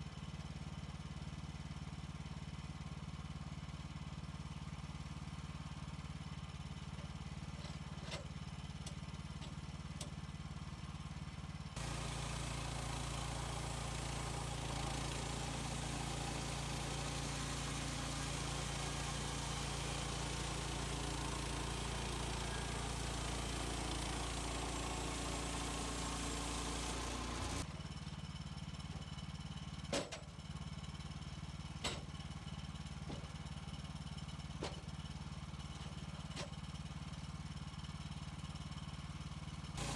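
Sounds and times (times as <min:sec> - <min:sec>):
sawmill engine idling and revving: 0:00.0 - 0:39.9
bandsaw cutting through log: 0:11.8 - 0:27.6.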